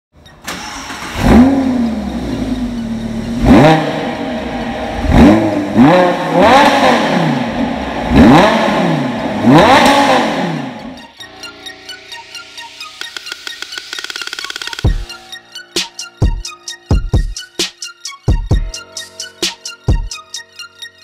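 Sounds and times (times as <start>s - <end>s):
car engine revving while stationary: 0.9s - 11.0s.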